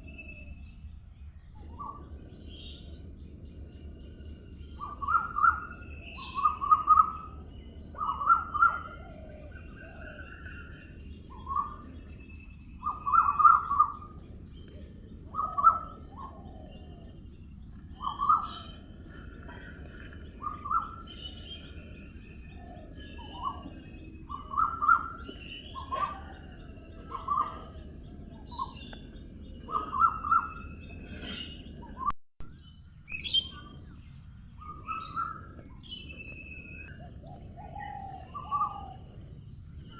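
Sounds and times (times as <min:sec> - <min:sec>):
steady low hiss: 0:00.0 - 0:31.9
birds calling: 0:04.2 - 0:32.1, 0:33.1 - 0:39.2.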